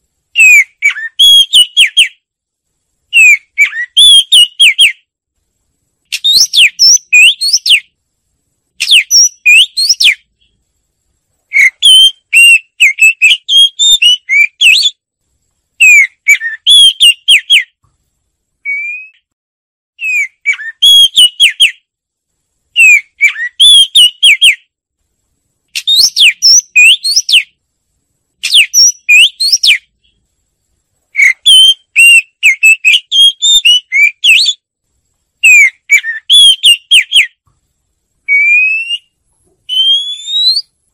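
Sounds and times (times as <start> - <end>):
bird singing whistled phrases: 0.4 - 2.2, 3.1 - 5.0, 6.1 - 7.9, 8.8 - 10.3, 11.5 - 15.0, 15.8 - 17.8, 18.6 - 19.3, 20.0 - 21.8, 22.8 - 24.7, 25.8 - 27.6, 28.4 - 30.2, 31.2 - 34.6, 35.4 - 37.4, 38.3 - 40.8.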